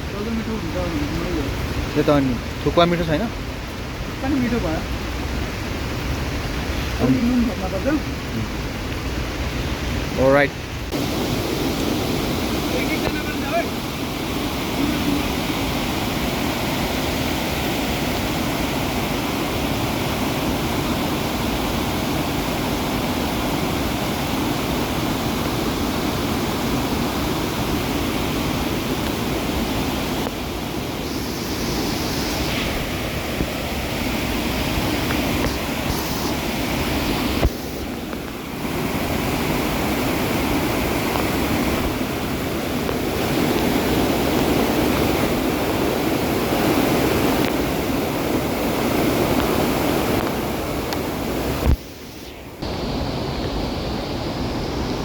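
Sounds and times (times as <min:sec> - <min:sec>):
fast-flowing water rushing: 0:00.0 - 0:55.0.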